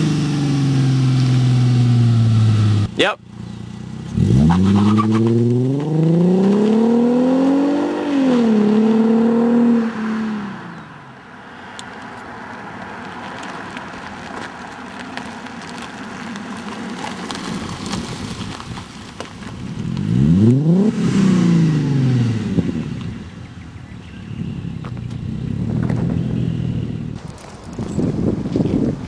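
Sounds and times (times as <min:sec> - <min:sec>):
car engine revving: 0:00.0 - 0:10.8, 0:19.4 - 0:27.2.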